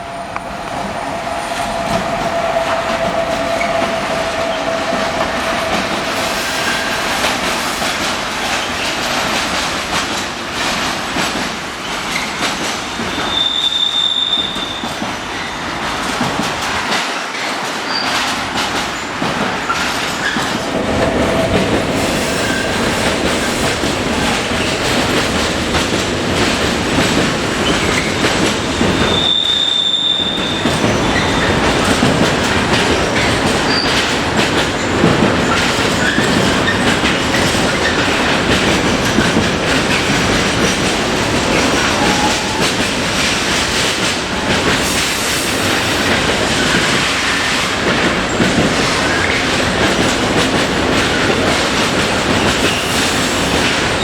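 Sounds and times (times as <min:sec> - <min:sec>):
train wheels rumbling on rails: 0:00.0 - 0:54.0
high wheel squeal: 0:13.2 - 0:15.6, 0:28.9 - 0:31.6, 0:52.5 - 0:53.8.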